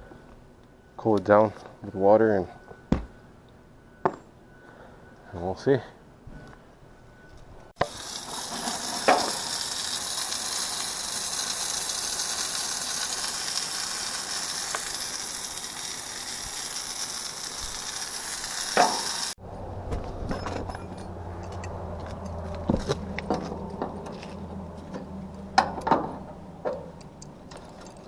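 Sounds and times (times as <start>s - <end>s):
water spraying from hose: 7.8s - 19.4s.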